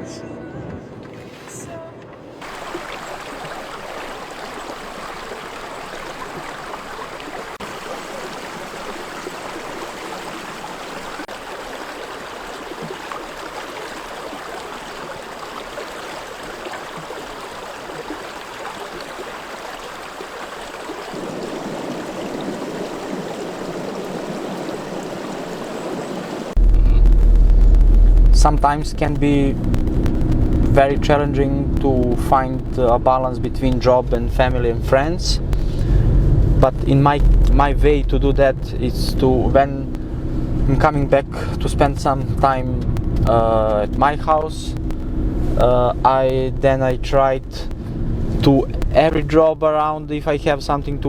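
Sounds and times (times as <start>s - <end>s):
stream water rushing: 2.3s - 26.6s.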